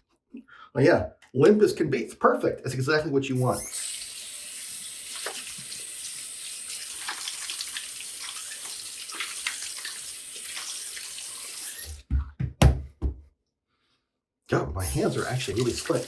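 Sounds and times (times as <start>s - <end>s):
tap running into sink: 5.1s - 5.8s.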